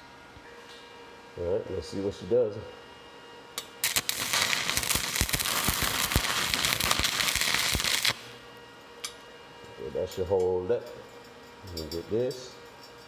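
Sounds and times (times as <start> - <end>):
welding arc crackling and popping: 3.8 - 8.4.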